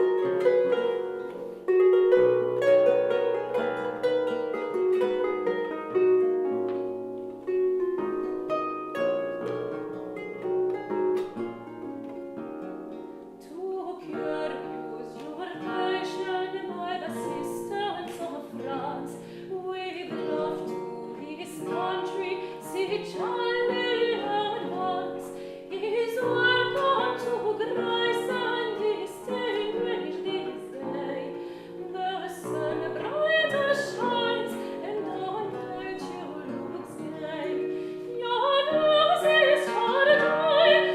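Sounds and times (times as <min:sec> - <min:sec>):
plucked harp chords: 0:00.0 - 0:40.9
strings: 0:00.0 - 0:40.9
woman singing with vibrato: 0:13.4 - 0:40.9.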